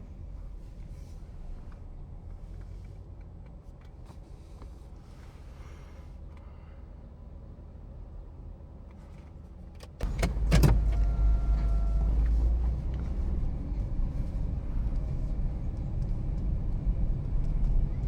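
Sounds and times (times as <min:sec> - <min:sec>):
car engine low hum: 0:00.0 - 0:18.0
car engine rumbling: 0:09.5 - 0:18.0.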